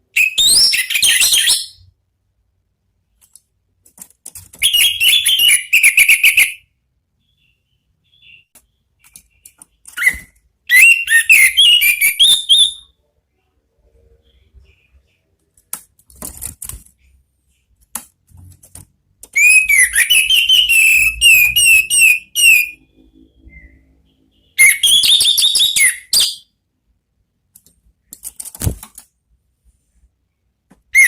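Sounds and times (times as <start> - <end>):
thrush singing whistled notes: 19.4 - 26.5.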